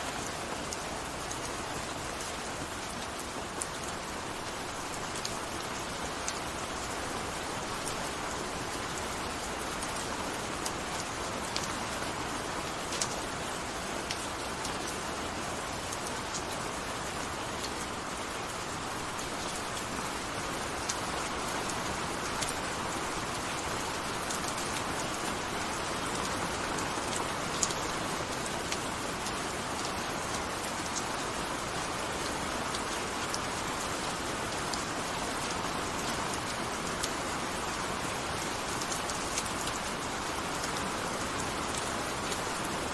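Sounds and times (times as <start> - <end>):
gentle rain falling: 0.0 - 42.9.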